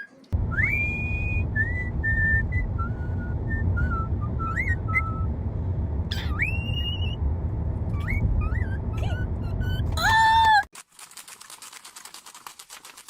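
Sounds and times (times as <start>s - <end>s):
steady low rumble: 0.4s - 10.1s
bird whistling: 0.5s - 5.3s, 6.1s - 7.2s, 8.0s - 10.0s.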